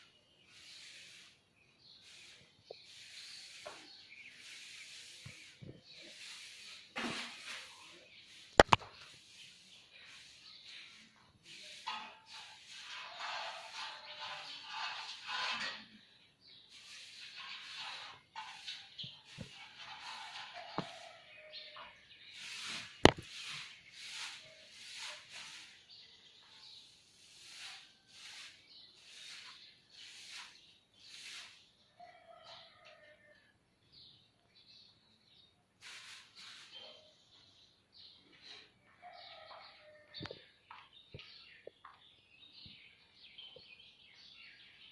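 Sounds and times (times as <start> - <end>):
sharp click: 8.6 - 8.8.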